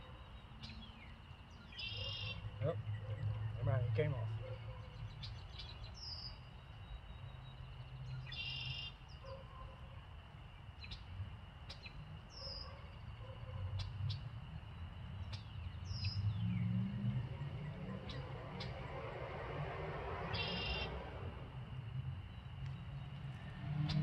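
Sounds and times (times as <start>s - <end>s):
high falling bird calls: 15.0s - 21.4s.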